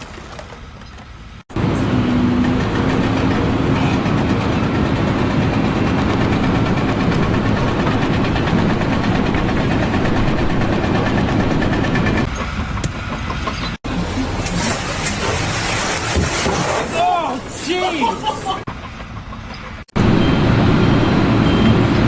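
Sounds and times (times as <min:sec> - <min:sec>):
large engine running loudly: 0:01.5 - 0:15.0.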